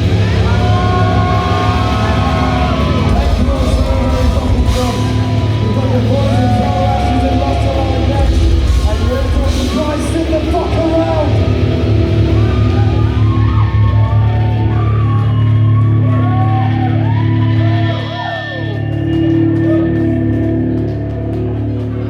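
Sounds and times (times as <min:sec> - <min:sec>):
distorted guitars ringing chord: 0:00.0 - 0:13.9
heavy rock band playing: 0:00.0 - 0:20.8.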